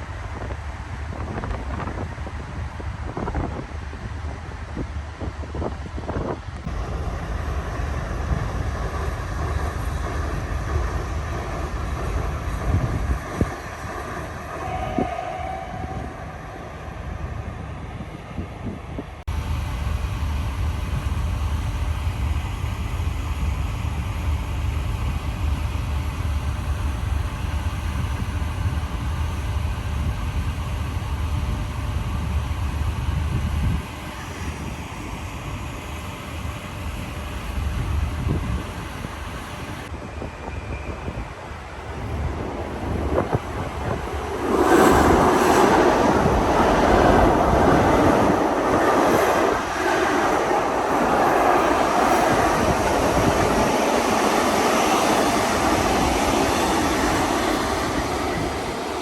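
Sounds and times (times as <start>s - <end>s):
ship engine low rumble: 0.0s - 59.0s
wind buffeting microphone: 8.2s - 19.3s, 37.6s - 59.0s.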